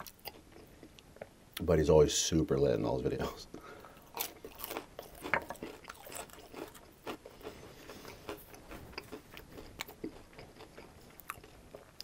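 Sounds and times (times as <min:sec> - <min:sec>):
chewing crispy food: 0:00.0 - 0:01.3, 0:03.8 - 0:12.0.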